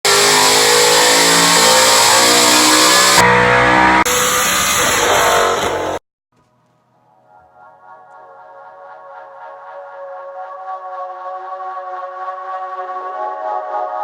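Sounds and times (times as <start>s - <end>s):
car engine revving hard: 0.0s - 6.0s.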